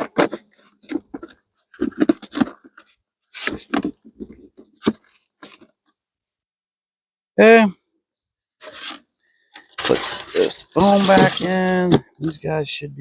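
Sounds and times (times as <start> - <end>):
hands rustling and scraping hive: 9.7 - 11.9.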